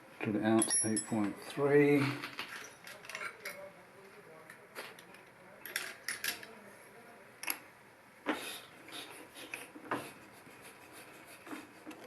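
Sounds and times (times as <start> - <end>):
metal tools clicking and knocking: 0.6 - 1.4, 2.0 - 3.6, 5.6 - 6.5.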